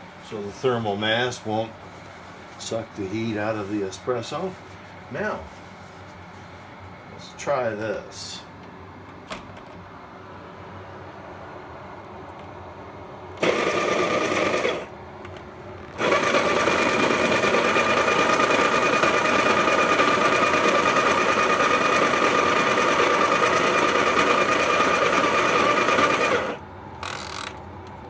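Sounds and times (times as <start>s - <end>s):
coffee grinder grinding: 13.4s - 14.9s, 16.0s - 27.6s.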